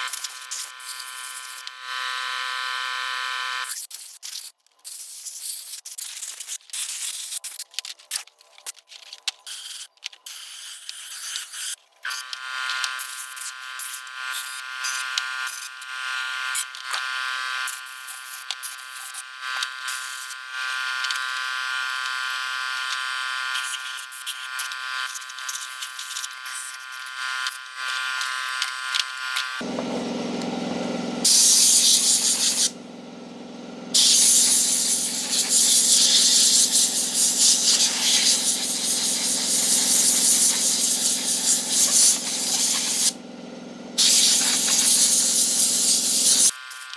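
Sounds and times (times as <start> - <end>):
loud hissing spray: 31.3 - 32.7, 34.0 - 43.2, 44.0 - 46.5
high whine with rapid clicking: 44.0 - 46.5.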